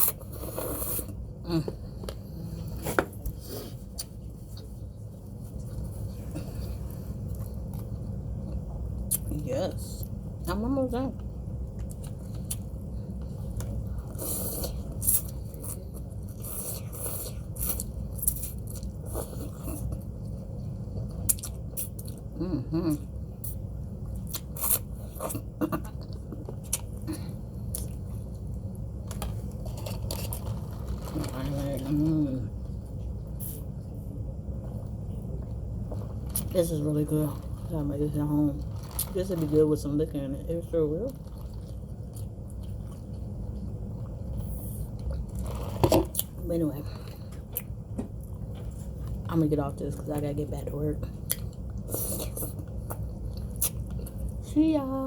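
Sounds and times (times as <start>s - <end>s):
low hum: 0.0s - 55.0s
person chewing food: 11.6s - 22.3s, 22.9s - 31.2s, 41.1s - 46.3s, 51.2s - 54.4s.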